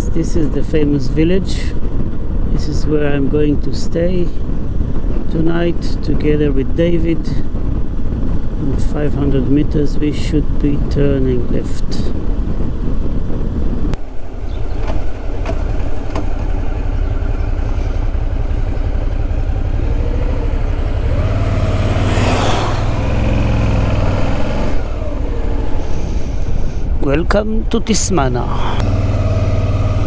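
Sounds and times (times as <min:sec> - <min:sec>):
wind rush on microphone: 0:00.1 - 0:28.8
motorcycle engine rumble: 0:00.5 - 0:30.0.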